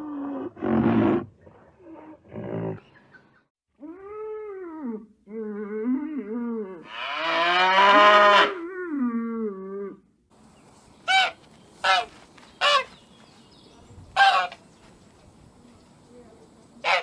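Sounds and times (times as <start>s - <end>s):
animal calls: 11.1s - 13.0s, 16.8s - 17.0s.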